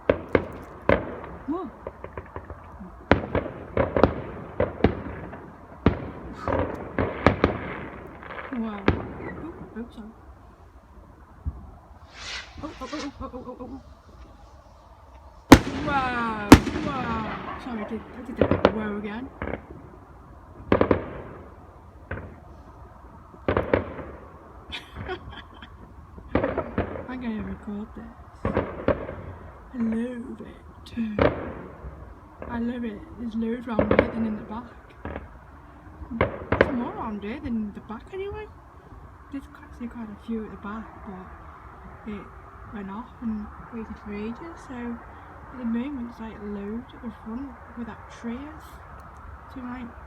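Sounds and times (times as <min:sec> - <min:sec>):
fireworks bangs: 0:00.0 - 0:10.1, 0:11.4 - 0:19.9, 0:20.6 - 0:22.4, 0:23.4 - 0:27.8, 0:28.4 - 0:30.2
fireworks crackling: 0:00.0 - 0:50.0
crackle of quick pops: 0:15.1 - 0:17.3.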